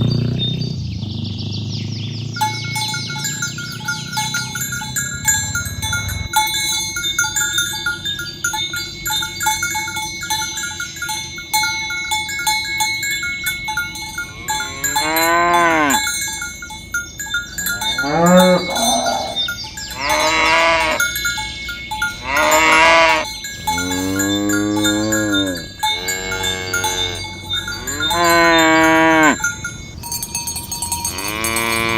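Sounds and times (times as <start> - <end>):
cow bells clinking: 0.0 - 1.0, 2.2 - 31.9
cattle mooing: 14.2 - 16.1, 17.6 - 21.2, 22.2 - 29.5, 31.0 - 31.9.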